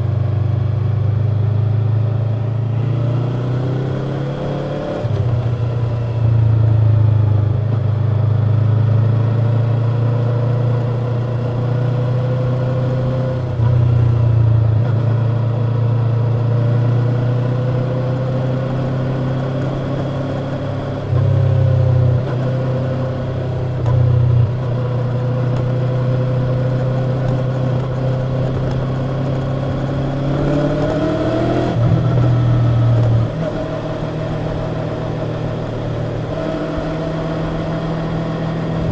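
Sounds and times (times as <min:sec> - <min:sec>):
motorcycle engine running while riding: 0:00.0 - 0:38.9.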